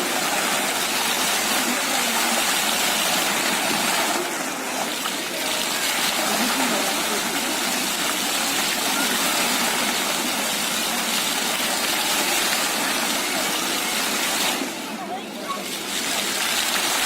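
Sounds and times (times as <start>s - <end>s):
water fountain rushing: 0.0s - 17.0s.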